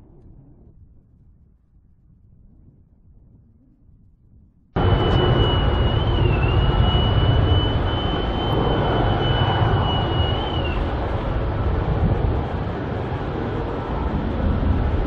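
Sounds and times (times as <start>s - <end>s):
high engine whine: 4.8s - 15.0s
jet engines rumbling: 4.8s - 15.0s.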